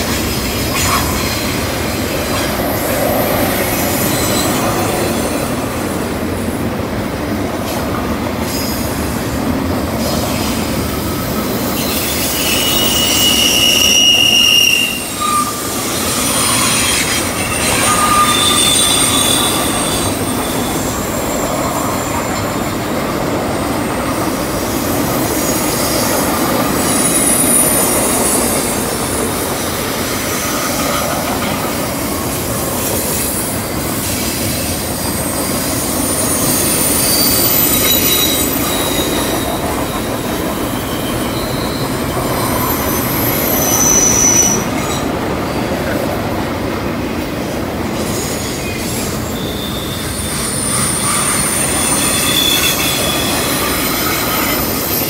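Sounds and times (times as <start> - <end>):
train wheels rumbling on rails: 0.0 - 55.0
high-pitched wheel squeals: 11.6 - 22.8, 34.9 - 44.9, 48.4 - 55.0.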